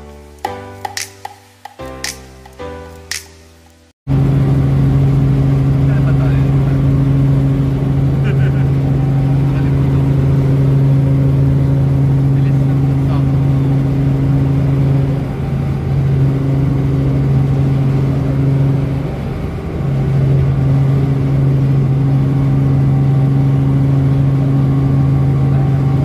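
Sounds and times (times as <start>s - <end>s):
helicopter engine and rotor drone: 4.1s - 26.0s.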